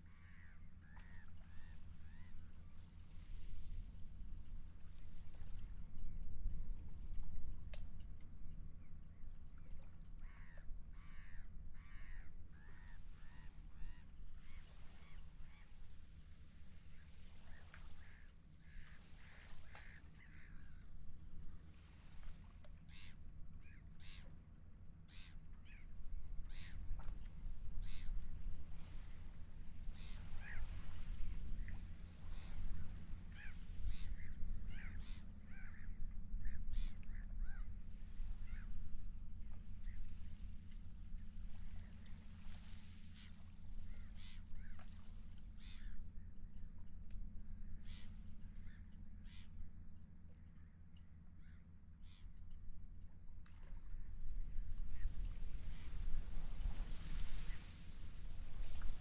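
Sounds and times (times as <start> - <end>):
wind and water rumble: 0.0 - 59.0
seagulls calling: 25.1 - 26.9, 30.0 - 31.7, 32.3 - 38.7.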